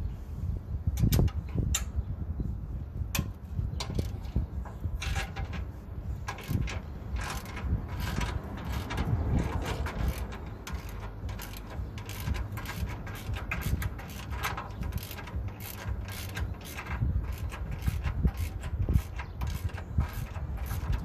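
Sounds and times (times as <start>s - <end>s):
socket ratchet clicking: 5.0s - 21.0s.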